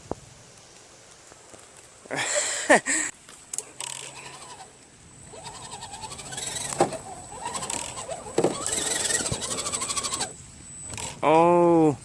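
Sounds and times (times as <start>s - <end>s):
electric motor whining: 3.8s - 11.2s
gears ticking: 5.3s - 11.1s.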